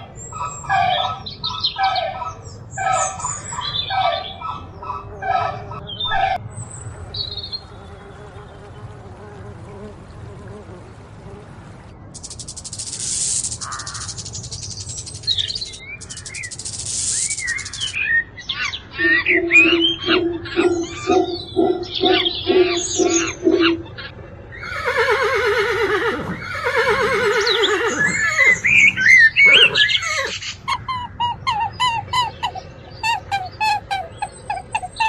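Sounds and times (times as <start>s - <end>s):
harsh repeated bird calls: 0.0s - 9.4s, 10.1s - 35.0s
birds chirping quickly: 0.0s - 35.0s
hissing buzzes: 7.0s - 18.0s
low pulsing bird call: 11.9s - 35.0s.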